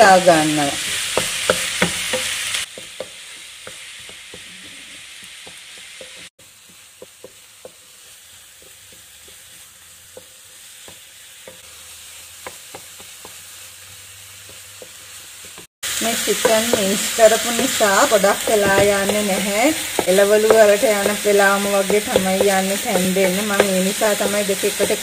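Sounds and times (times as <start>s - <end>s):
meat and vegetables sizzling in a wok: 0.0s - 25.0s
spatula tapping against a pan: 1.1s - 4.5s, 5.2s - 7.8s, 12.4s - 13.4s, 18.6s - 25.0s.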